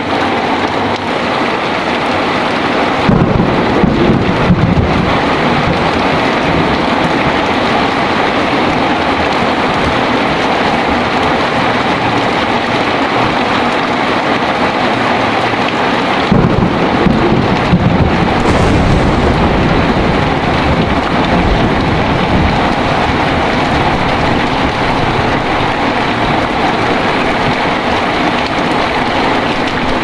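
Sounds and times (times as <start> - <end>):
heavy rain pouring: 0.0 - 30.0
thunder rumbling: 16.2 - 30.0.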